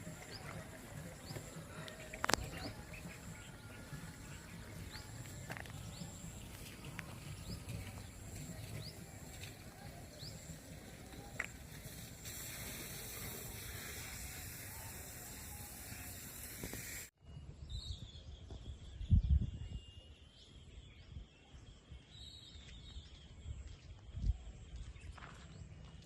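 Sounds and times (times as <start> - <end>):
steady hiss: 0.0 - 17.1.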